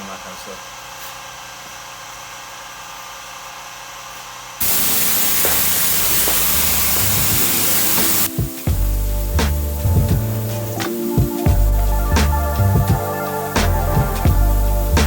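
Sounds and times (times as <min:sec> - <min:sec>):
pressure washer spray hissing: 0:04.6 - 0:08.4
steady hum: 0:04.6 - 0:09.3.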